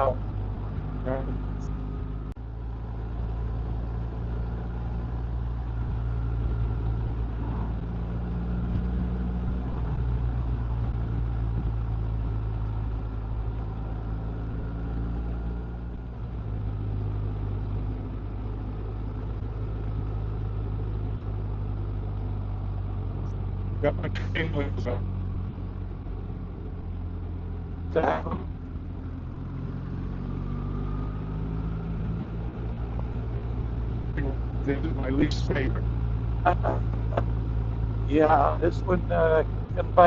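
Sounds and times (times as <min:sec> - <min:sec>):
motorcycle engine running: 0:00.0 - 0:40.0
road and wind noise: 0:00.0 - 0:40.0.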